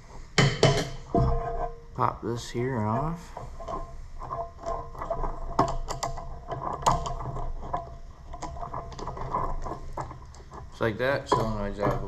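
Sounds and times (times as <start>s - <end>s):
small clicks and metallic clatter: 3.3s - 12.0s.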